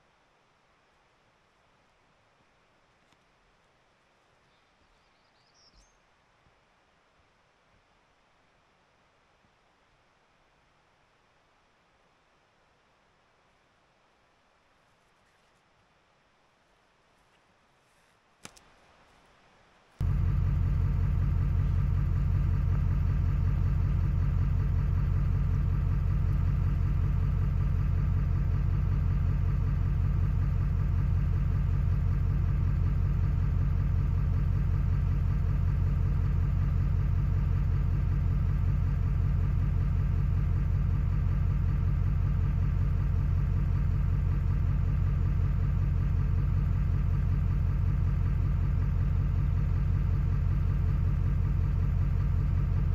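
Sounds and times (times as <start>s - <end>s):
engine idling: 20.0s - 52.9s.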